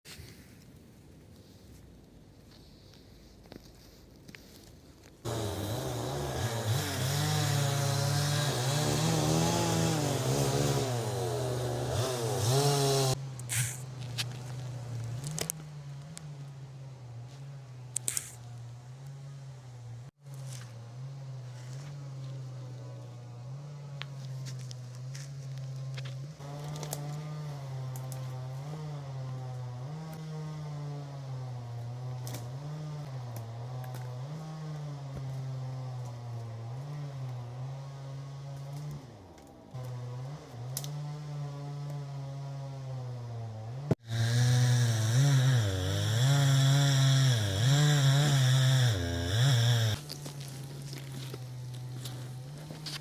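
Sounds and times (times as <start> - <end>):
chainsaw engine revving: 5.2 - 13.8, 26.4 - 53.0.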